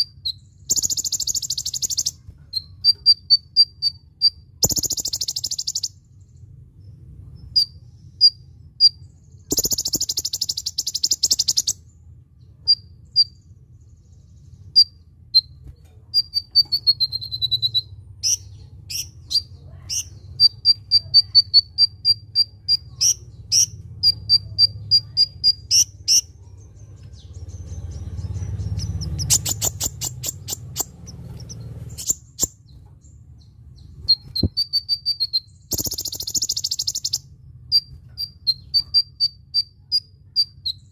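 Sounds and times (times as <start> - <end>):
faint low hum: 0.0 - 40.9
sunbird chirping: 0.0 - 40.9
buzzing rattles: 26.9 - 33.1.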